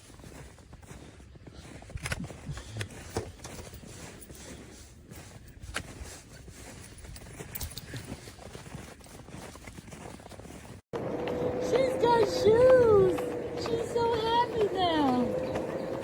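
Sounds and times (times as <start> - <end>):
dog's booted paws tapping: 11.0 - 16.0.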